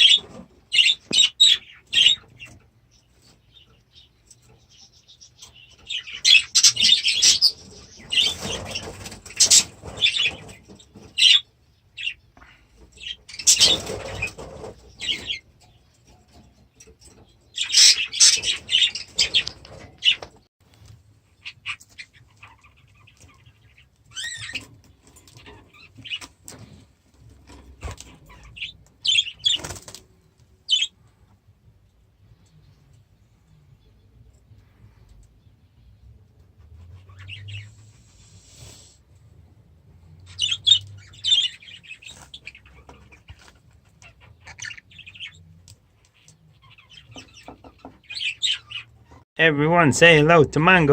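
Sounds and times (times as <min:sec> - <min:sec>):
budgerigars chattering: 0:00.0 - 0:02.5, 0:05.4 - 0:11.4, 0:13.0 - 0:15.4, 0:17.5 - 0:20.3, 0:40.3 - 0:43.3, 0:46.2 - 0:49.0
wings flapping: 0:29.4 - 0:30.0.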